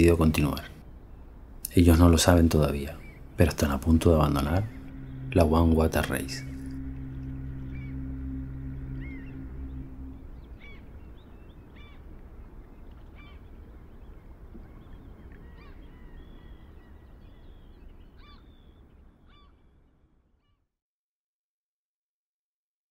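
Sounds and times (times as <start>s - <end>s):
low outdoor hiss: 0.0s - 19.3s
choral chord: 2.0s - 11.8s.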